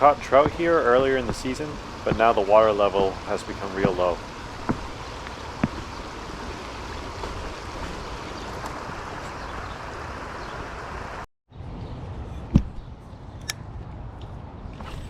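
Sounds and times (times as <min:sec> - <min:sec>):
river water flowing: 0:00.0 - 0:11.3.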